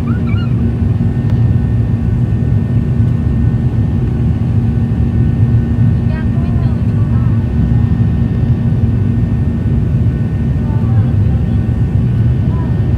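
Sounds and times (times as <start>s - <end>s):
airplane cabin engine roar: 0.0s - 12.9s.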